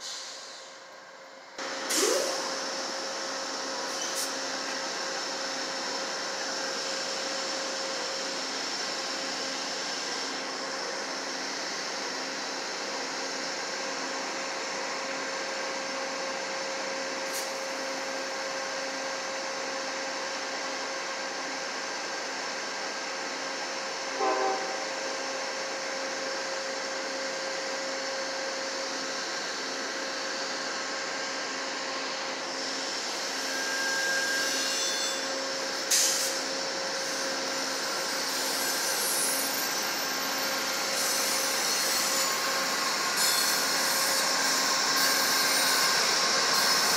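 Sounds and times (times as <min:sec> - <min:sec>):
diesel locomotive humming: 0:24.1 - 0:25.8.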